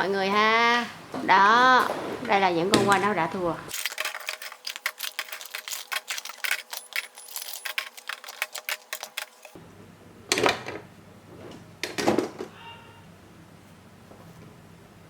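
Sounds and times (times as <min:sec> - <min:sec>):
spinning tops clattering together: 0:03.7 - 0:09.6.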